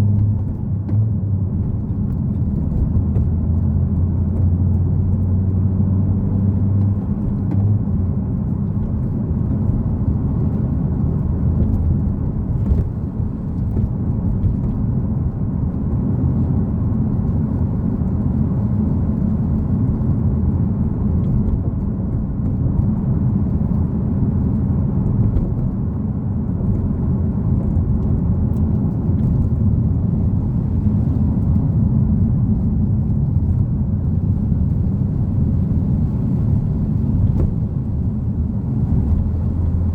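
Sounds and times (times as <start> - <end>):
car engine running: 0.0 - 39.9
low road rumble: 0.0 - 39.9.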